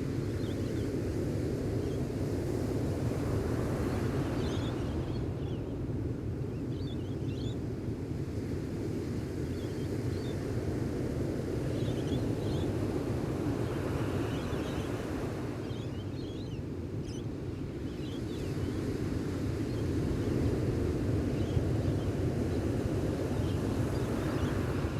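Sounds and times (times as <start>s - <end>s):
faint small-bird chirps: 6.7s - 7.6s, 13.7s - 15.0s, 15.6s - 17.2s, 17.8s - 18.8s
ocean surf washing on shore: 19.0s - 24.9s.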